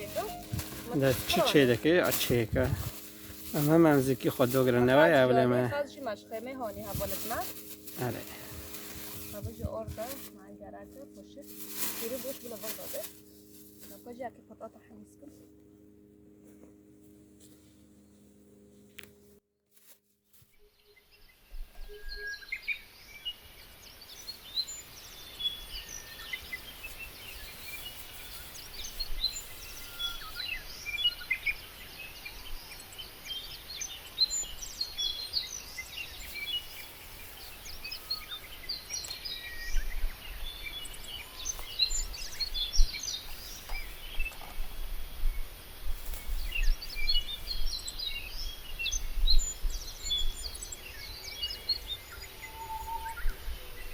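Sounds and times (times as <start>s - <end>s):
birds chirping and singing: 21.3s - 53.9s.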